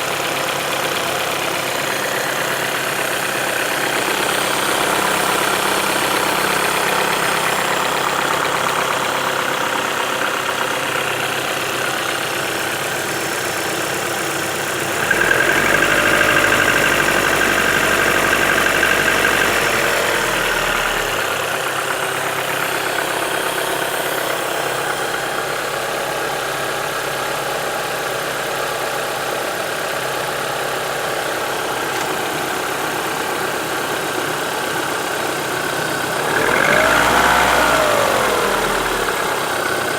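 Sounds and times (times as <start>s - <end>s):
vehicle engine idling and revving: 0.0s - 29.0s, 30.1s - 39.9s.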